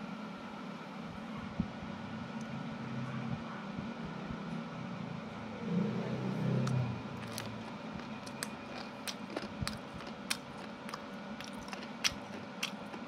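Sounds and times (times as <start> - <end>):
faint steady hum: 0.0 - 13.0
person chewing wet clicks: 6.6 - 13.0.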